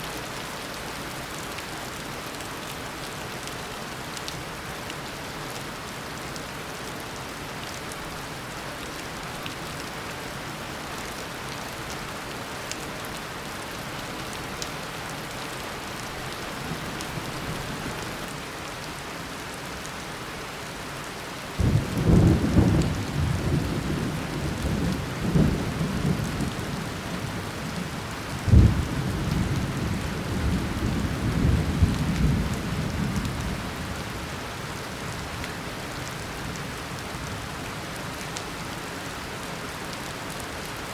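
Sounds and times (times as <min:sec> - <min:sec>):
steady downpour of rain: 0:00.0 - 0:40.9
thunder rumbling: 0:28.4 - 0:33.5.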